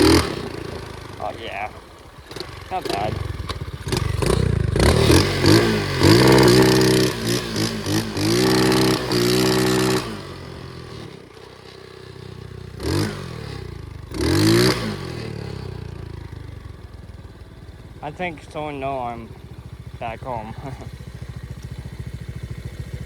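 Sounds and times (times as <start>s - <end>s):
pit bike engine revving: 0.0s - 23.0s.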